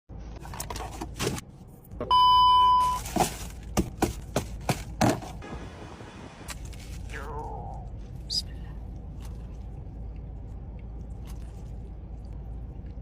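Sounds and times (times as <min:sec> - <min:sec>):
electronic beep: 0:02.1 - 0:03.0.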